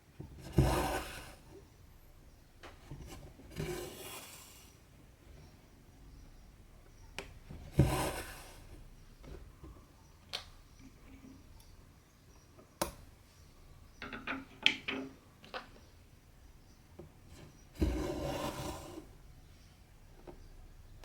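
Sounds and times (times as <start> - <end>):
needle and thread through fabric: 0.3 - 1.6, 7.5 - 8.9, 17.5 - 19.1.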